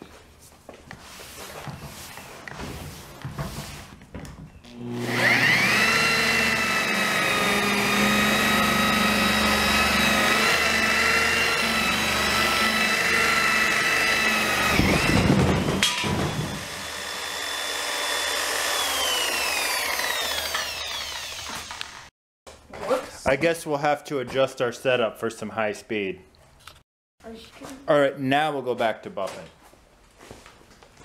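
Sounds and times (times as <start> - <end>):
electric polisher motor whining: 4.7 - 22.1.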